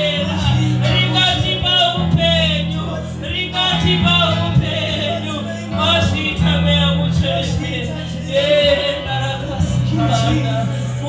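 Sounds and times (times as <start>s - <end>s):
low bass notes: 0.0s - 11.0s
voices singing gospel song: 0.0s - 11.0s.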